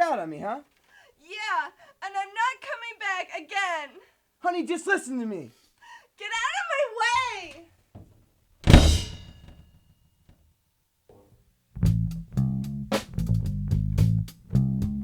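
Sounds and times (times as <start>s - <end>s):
loud ringing bang: 8.7s - 9.6s
rock song with bass and drums: 11.9s - 14.7s.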